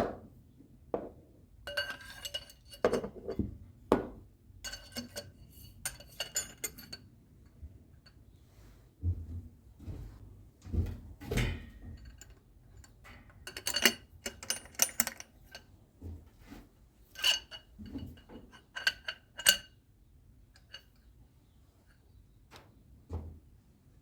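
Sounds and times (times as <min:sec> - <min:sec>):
metal tools clinking: 0:01.7 - 0:03.5, 0:04.6 - 0:07.1, 0:11.4 - 0:15.7, 0:17.1 - 0:19.7.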